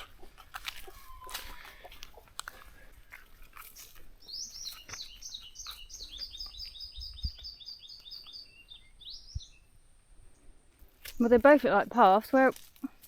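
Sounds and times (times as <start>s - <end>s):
bird singing high slurred notes: 4.2s - 9.8s.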